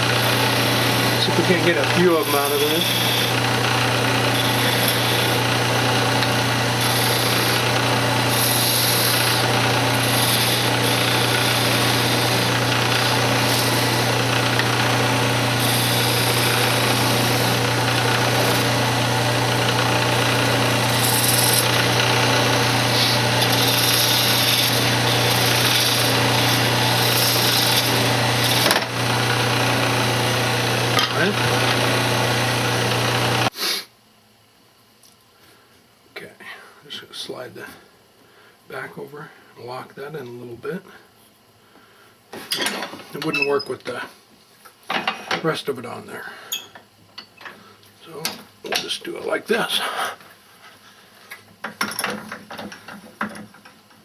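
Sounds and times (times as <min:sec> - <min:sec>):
lathe motor hum: 0:00.0 - 0:33.5
tool scraping spinning wood: 0:00.0 - 0:33.5.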